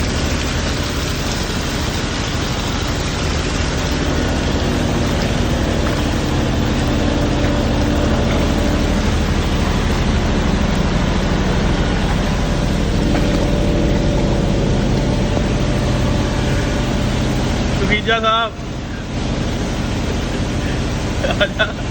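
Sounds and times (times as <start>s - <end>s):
engine running steadily: 0.0s - 21.9s
rushing noise: 2.0s - 21.9s.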